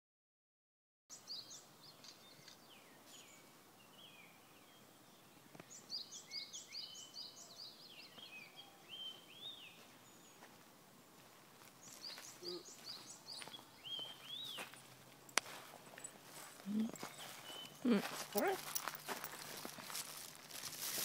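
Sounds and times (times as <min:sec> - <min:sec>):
birds chirping and whistling: 0:05.7 - 0:10.4, 0:11.8 - 0:14.8, 0:16.0 - 0:19.0.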